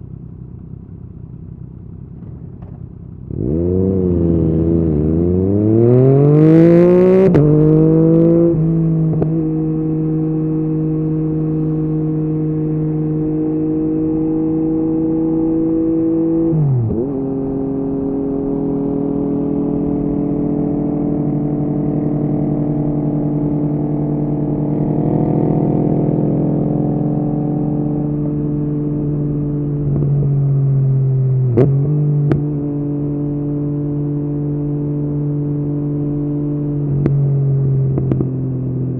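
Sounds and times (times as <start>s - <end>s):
motorcycle engine revving: 1.2s - 38.9s.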